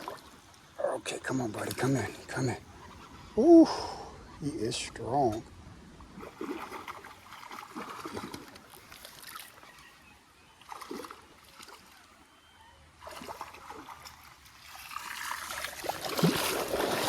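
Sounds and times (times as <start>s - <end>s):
water splashing in a creek: 0.0s - 2.5s, 6.0s - 17.0s.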